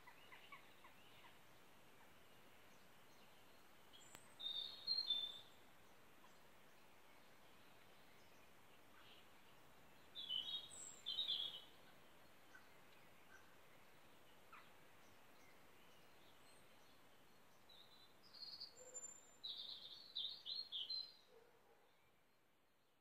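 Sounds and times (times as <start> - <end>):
faint background hiss: 0.0 - 23.0
songbirds singing: 0.0 - 23.0.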